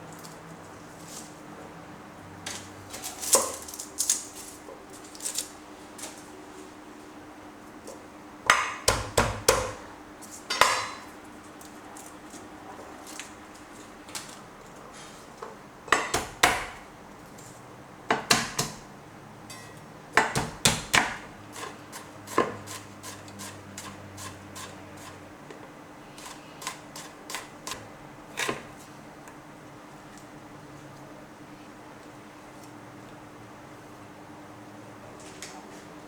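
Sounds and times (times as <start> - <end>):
knife chopping on cutting board: 8.5 - 9.8, 20.2 - 23.9.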